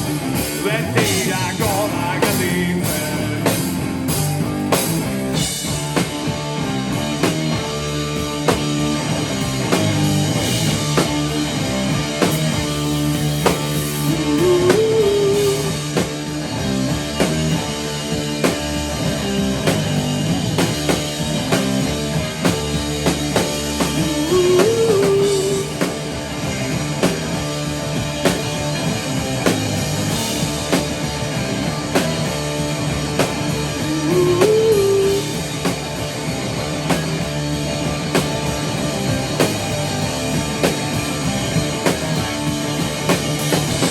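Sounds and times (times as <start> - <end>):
rock band playing live: 0.0 - 43.9.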